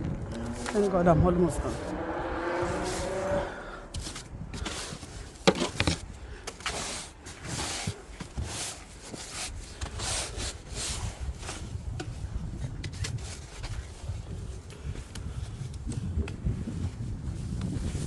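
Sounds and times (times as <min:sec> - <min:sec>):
snow swept and scraped off car: 0:00.5 - 0:01.9, 0:02.6 - 0:12.3.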